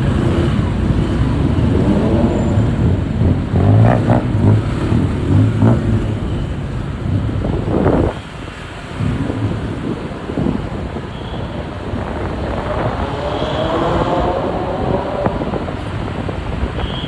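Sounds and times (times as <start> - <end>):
motorbike engine accelerating: 0.0 - 8.2, 11.6 - 16.6
road and traffic noise: 0.0 - 17.0.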